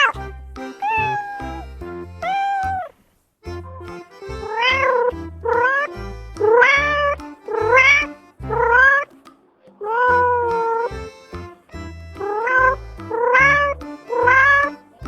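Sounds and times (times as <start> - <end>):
cat meowing: 0.8 - 2.9.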